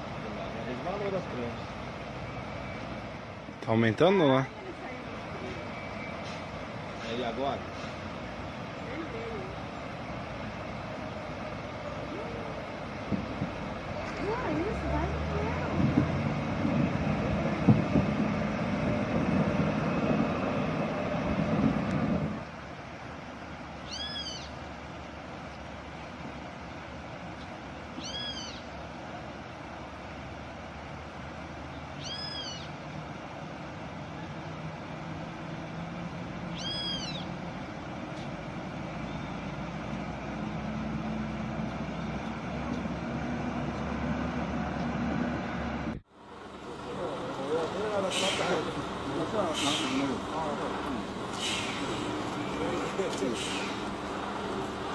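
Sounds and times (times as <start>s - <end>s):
truck engine rumbling: 0.0s - 54.9s
high squeal: 36.5s - 37.3s
short high squeal: 36.6s - 37.2s, 51.3s - 52.6s, 53.3s - 53.8s
hiss: 48.0s - 48.8s, 49.4s - 50.3s, 51.3s - 52.4s, 53.1s - 54.0s.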